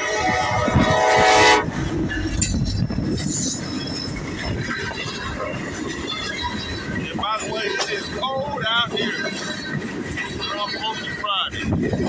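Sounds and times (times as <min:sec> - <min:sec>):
locomotive horn chord: 0:00.0 - 0:02.5
freight train rumbling past: 0:00.0 - 0:12.0.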